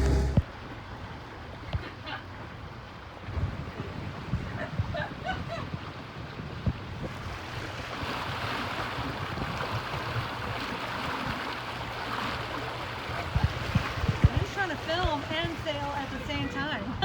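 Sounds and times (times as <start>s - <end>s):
water rushing along hull: 0.0s - 17.0s
wind buffeting microphone: 3.3s - 11.4s, 13.0s - 17.0s.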